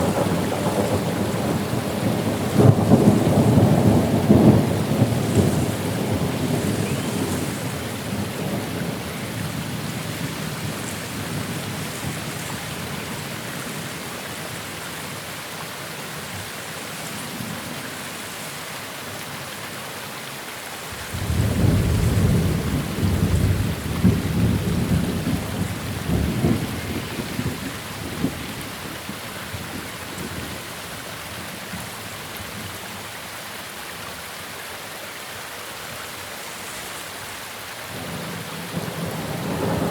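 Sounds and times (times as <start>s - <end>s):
thunder rumbling: 0.0s - 12.2s, 21.0s - 29.1s, 37.9s - 39.9s
steady rain: 0.0s - 39.9s.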